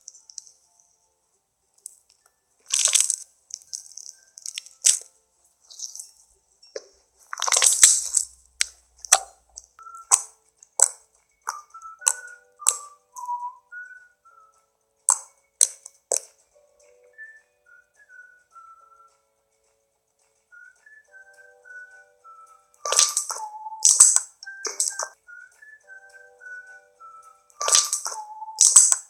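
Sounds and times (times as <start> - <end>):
slime squeezed and stretched: 2.7 - 5.0, 7.3 - 8.3
squishy bursts: 2.7 - 5.0, 7.3 - 8.4
air pops and crackles in slime: 2.7 - 5.1, 6.8 - 12.9, 15.1 - 16.3, 22.9 - 25.1, 27.6 - 29.0.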